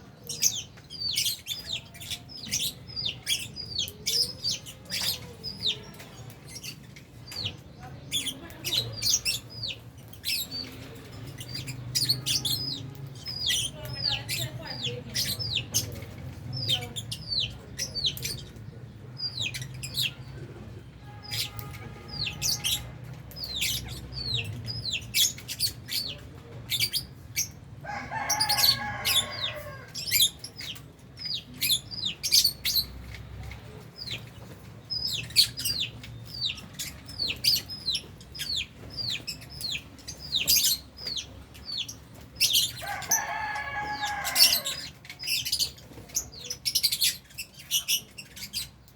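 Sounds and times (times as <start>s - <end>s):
birds chirping: 0.0s - 48.9s.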